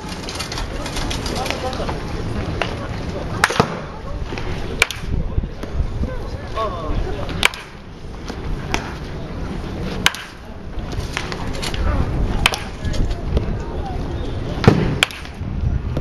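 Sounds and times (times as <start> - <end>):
wooden bat striking ball: 3.4 - 4.0, 4.8 - 5.2, 7.4 - 7.8, 10.0 - 10.4, 12.4 - 12.8, 14.6 - 15.4.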